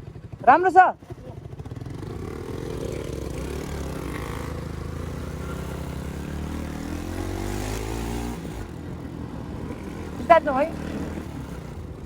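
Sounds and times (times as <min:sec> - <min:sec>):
motorcycle engine: 0:00.0 - 0:12.0.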